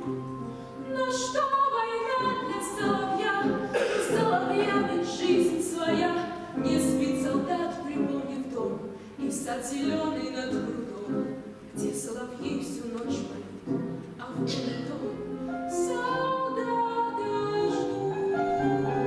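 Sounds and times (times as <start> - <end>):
piano accompaniment: 0.0 - 19.0
choir singing slow song: 1.1 - 7.8.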